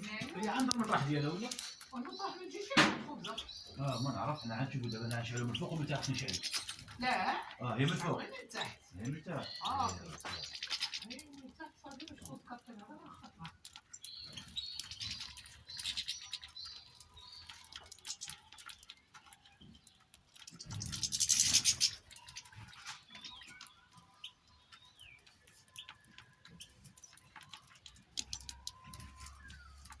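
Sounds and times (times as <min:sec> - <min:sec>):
cage birds chirping: 0:00.0 - 0:30.0
small clicks and taps: 0:08.6 - 0:30.0.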